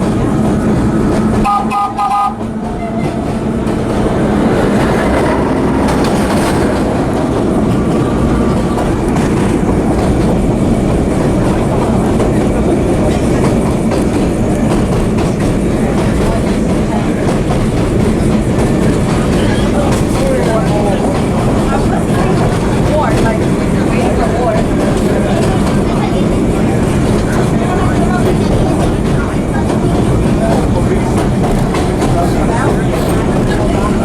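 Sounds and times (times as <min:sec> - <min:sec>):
subway train rumbling on rails: 0:00.0 - 0:34.0
train horn blast: 0:01.4 - 0:03.5.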